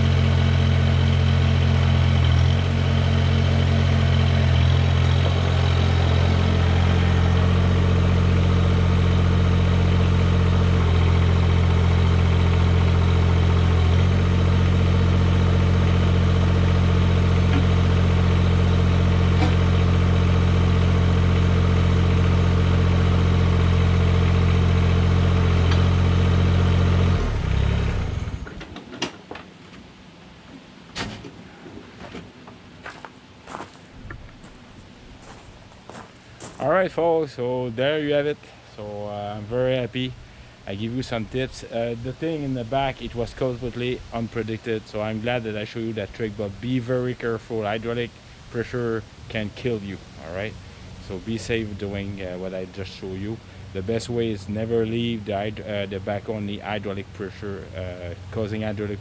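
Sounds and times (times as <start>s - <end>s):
tractor diesel engine running: 0.0s - 28.8s, 31.2s - 59.0s.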